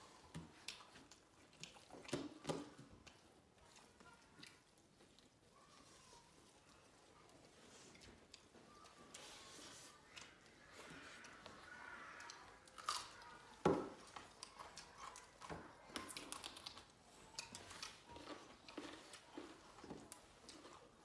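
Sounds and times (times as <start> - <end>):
people chewing food: 0.0 - 21.0
small crunches and clicks: 10.0 - 21.0.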